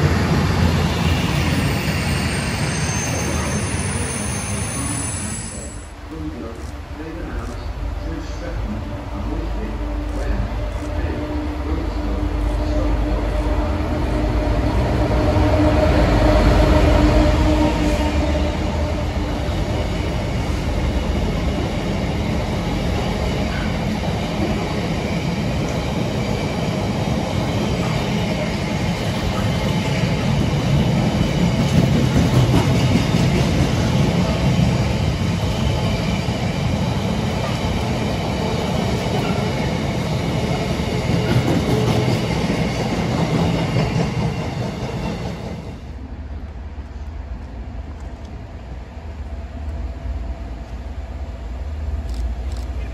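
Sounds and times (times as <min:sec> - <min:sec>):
train wheels rumbling on track: 0:00.0 - 0:52.9
faint high wheel squeal: 0:01.3 - 0:05.9.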